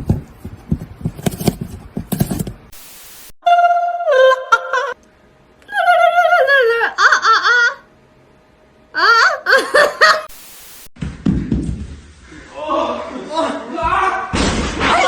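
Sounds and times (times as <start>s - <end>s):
high-pitched laughter: 4.2s - 5.0s, 5.7s - 7.9s, 9.0s - 10.3s.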